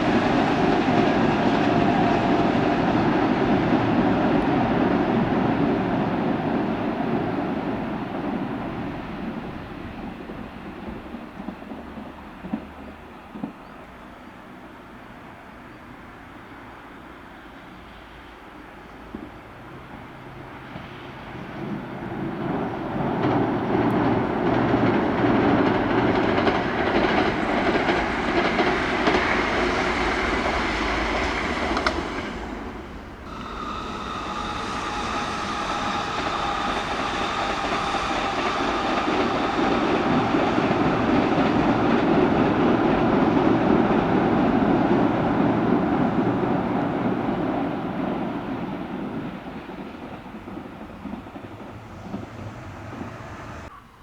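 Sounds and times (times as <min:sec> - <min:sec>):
electric train passing: 0:00.0 - 0:53.8
high whining tones: 0:31.2 - 0:42.0.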